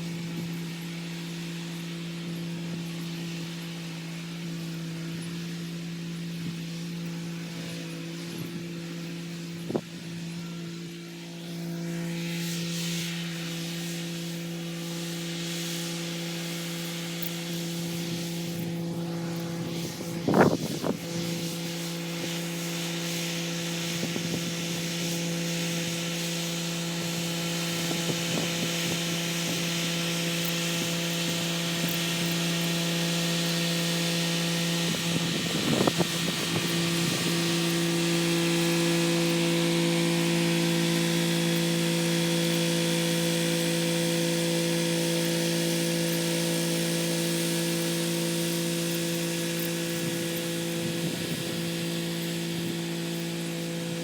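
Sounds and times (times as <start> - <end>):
rotary tiller turning: 26.6 - 54.0.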